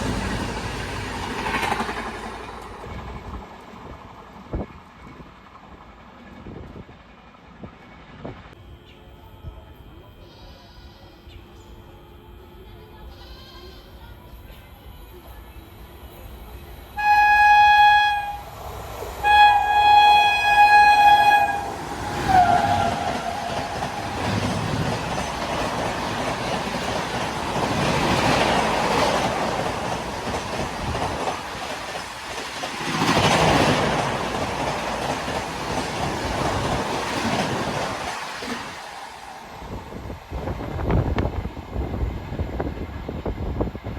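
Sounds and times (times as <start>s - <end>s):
train passing at high speed: 0.0s - 8.6s, 16.3s - 43.9s
train horn blasts: 17.0s - 18.6s, 19.2s - 25.2s.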